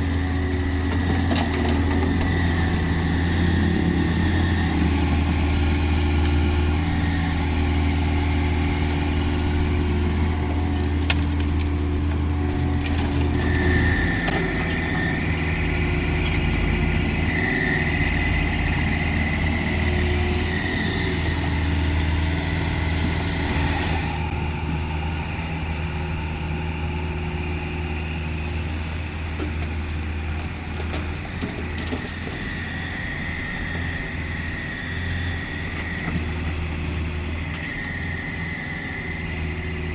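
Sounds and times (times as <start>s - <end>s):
excavator diesel engine running: 0.0s - 39.9s
high whine: 2.1s - 29.3s.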